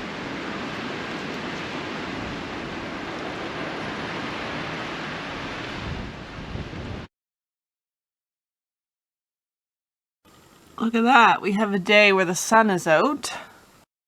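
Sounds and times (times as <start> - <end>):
rushing wind: 0.0 - 7.1
wind noise on microphone: 0.0 - 7.1.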